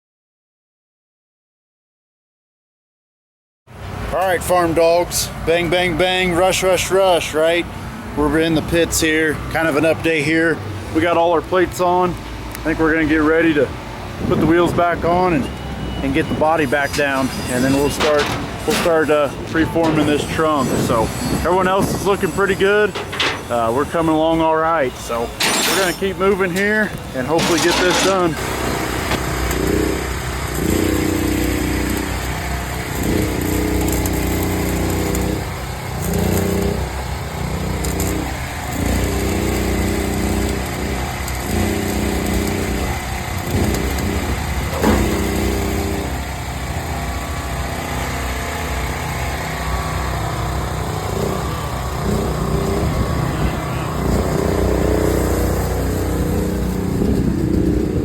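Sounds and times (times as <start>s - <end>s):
motor running in bursts: 16.7s - 24.3s, 25.2s - 58.0s.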